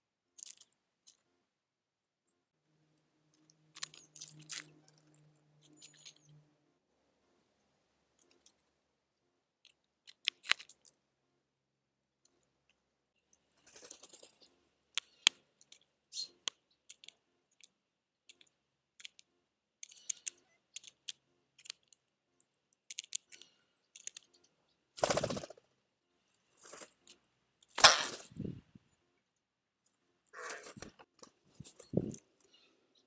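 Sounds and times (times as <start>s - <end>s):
seeds and nuts crunching: 3.7s - 4.8s.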